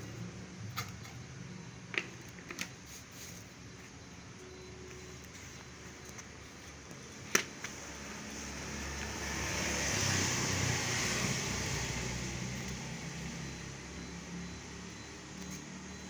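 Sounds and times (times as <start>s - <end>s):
vehicle passing: 7.6s - 16.0s.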